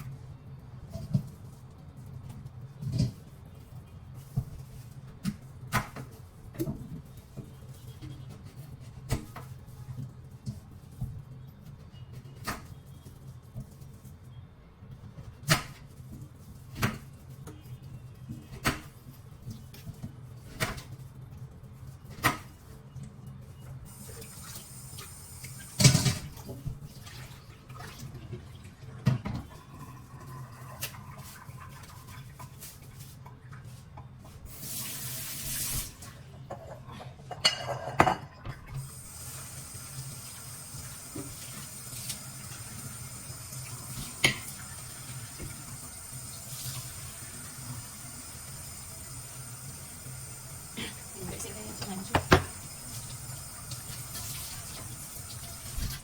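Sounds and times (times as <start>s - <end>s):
dishes knocking and clinking: 36.5s - 38.6s, 52.1s - 52.6s
tap running into sink: 52.0s - 56.0s.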